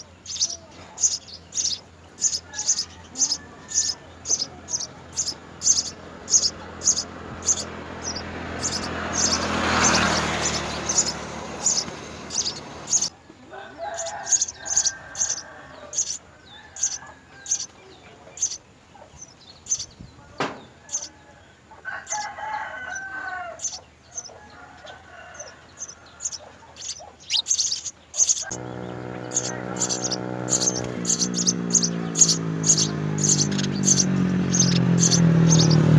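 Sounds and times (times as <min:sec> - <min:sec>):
low wavering bird calls: 0:00.0 - 0:13.2, 0:26.8 - 0:35.9
sparrows chirping: 0:00.0 - 0:35.9.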